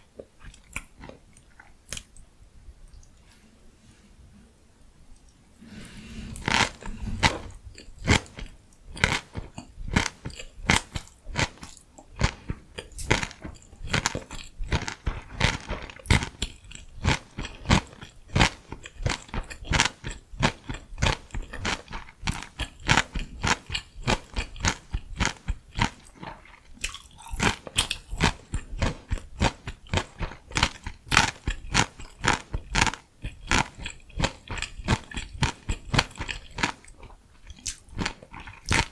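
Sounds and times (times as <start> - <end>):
chewing crunchy food: 0.0 - 3.4, 5.1 - 38.9.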